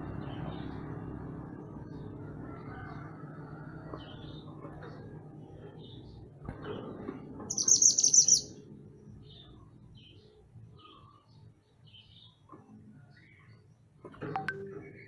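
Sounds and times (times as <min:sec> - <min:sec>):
bird singing high-pitched trill: 0:07.5 - 0:08.5
faint short bird chirps: 0:07.5 - 0:08.5.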